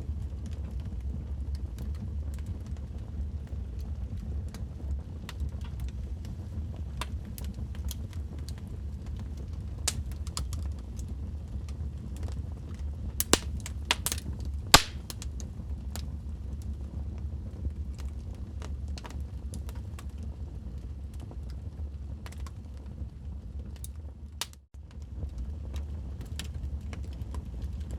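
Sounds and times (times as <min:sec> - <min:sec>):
wood fire crackling: 0:05.3 - 0:11.2, 0:13.2 - 0:15.4.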